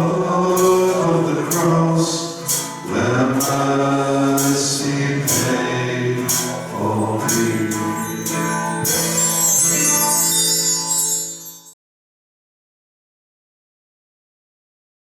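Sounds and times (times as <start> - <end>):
worship band playing: 0.0 - 11.6
percussion hits: 2.4 - 11.7
cymbal swell: 5.2 - 11.8.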